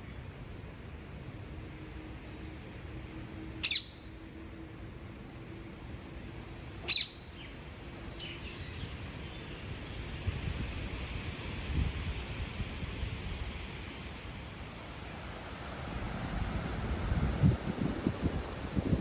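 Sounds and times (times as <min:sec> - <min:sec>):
faint steady hum: 0:00.0 - 0:19.0
bird calls: 0:03.6 - 0:04.1, 0:06.6 - 0:09.9.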